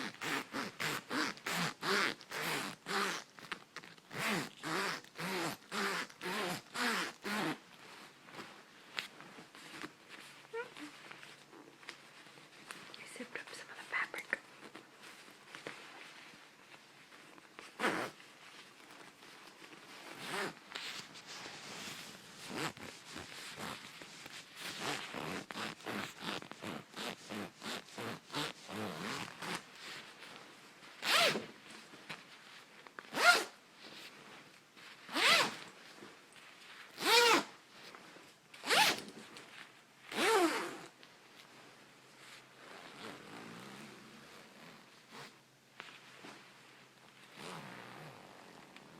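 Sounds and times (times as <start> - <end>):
coat zipper zipping: 0.0 - 3.4, 4.1 - 8.5, 17.3 - 30.3, 31.0 - 31.5, 33.0 - 33.6, 35.1 - 36.1, 36.9 - 38.0, 38.6 - 39.3, 40.0 - 41.0, 42.5 - 45.4, 47.0 - 48.9.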